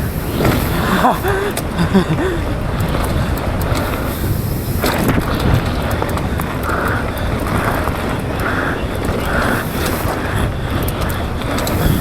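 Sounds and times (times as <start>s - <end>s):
bike rattling and clicking: 0.0s - 12.0s
wind rushing over microphone: 0.0s - 12.0s
tyre roar: 0.1s - 3.2s.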